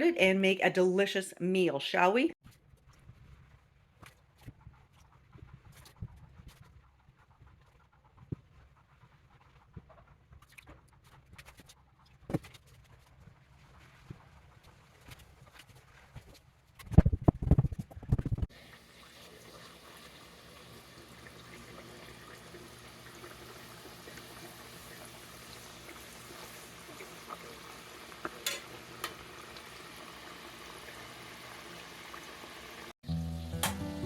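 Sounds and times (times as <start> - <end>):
oil sizzling in a pot: 18.5 - 33.9.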